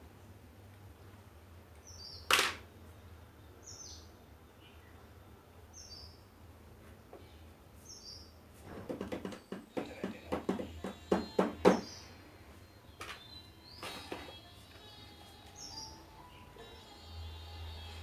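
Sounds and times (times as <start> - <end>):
knocks and clatter: 8.6 - 11.9
bird chirping: 10.7 - 17.5.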